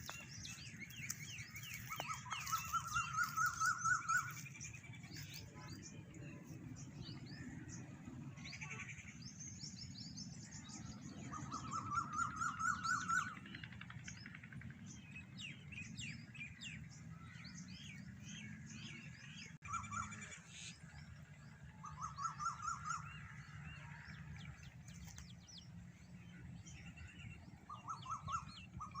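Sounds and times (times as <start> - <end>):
bird trill: 0.0 - 4.8
birds chirping and calling: 0.0 - 29.0.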